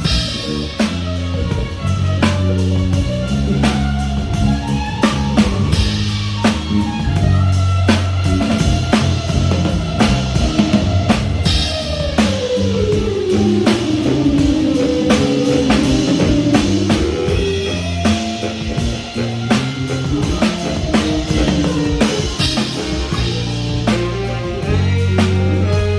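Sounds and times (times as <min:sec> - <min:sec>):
lead instrument solo sliding down: 0:00.0 - 0:25.9
live band music: 0:00.0 - 0:25.9.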